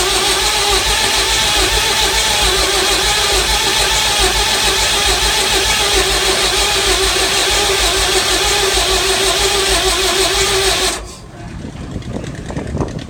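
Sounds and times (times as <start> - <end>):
diesel engine cranking: 0.0 - 13.0.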